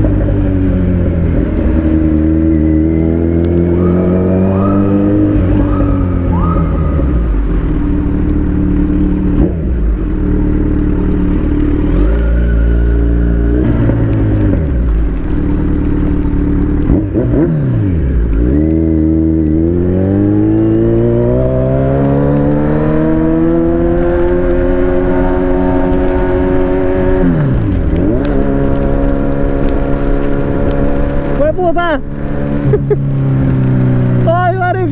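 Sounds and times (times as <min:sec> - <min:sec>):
motorcycle engine running: 0:00.0 - 0:19.8.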